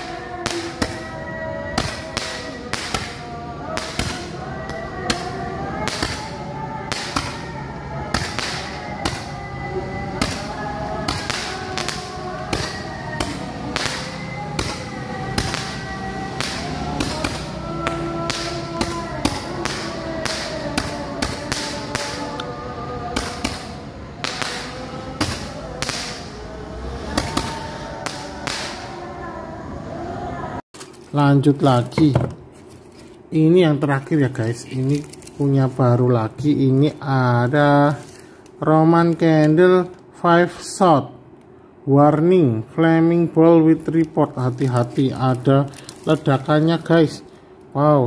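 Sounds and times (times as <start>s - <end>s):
fireworks cracking: 0.0s - 29.0s, 43.9s - 46.8s
background music: 0.0s - 39.3s.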